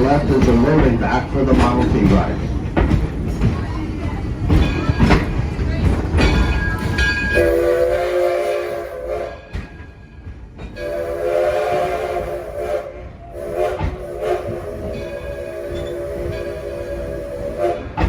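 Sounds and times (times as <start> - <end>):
moving train rumble: 0.0 - 18.0
steam locomotive whistle blasts: 7.3 - 9.7, 10.8 - 18.0.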